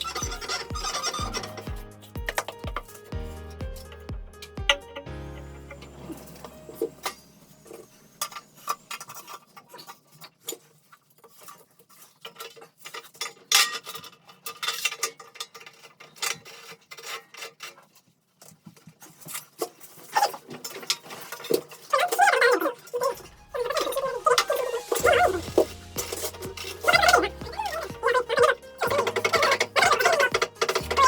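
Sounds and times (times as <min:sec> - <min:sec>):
hard objects clinking and scraping: 0:18.6 - 0:31.0.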